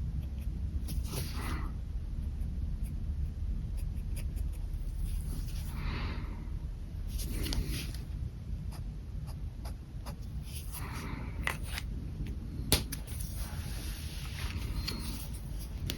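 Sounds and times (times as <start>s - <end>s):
pen scratching on paper: 0.2s - 1.7s, 2.8s - 5.7s, 14.7s - 15.7s.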